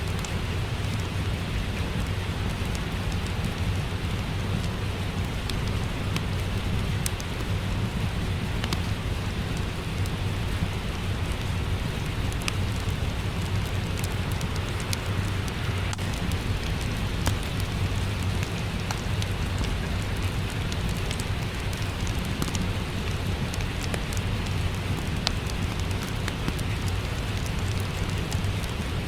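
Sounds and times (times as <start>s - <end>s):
steady rain: 0.0s - 29.0s
wood fire crackling: 0.0s - 29.0s.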